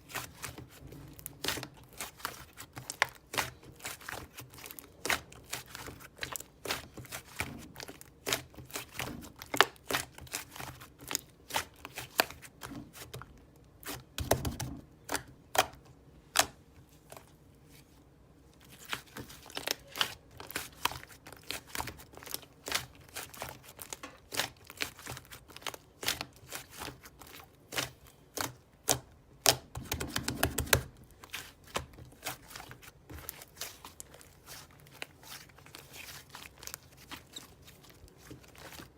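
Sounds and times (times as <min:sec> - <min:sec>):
slime squished by hand: 0:18.6 - 0:38.9.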